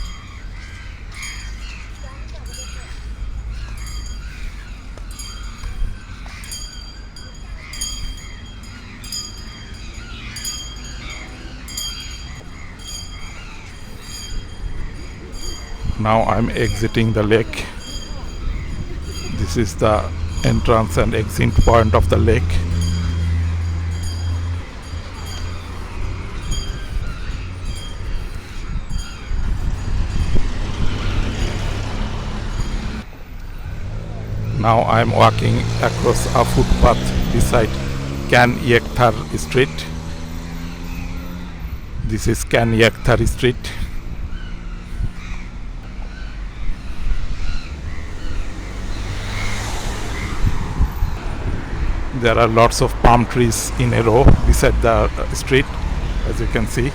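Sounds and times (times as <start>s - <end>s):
crows cawing: 0.0s - 33.0s, 43.8s - 52.1s
street traffic passing: 0.0s - 56.9s.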